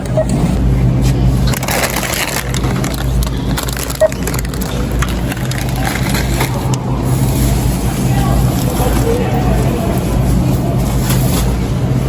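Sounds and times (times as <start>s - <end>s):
steady low hum: 0.0s - 7.9s
groceries rustling and crackling: 0.9s - 12.0s.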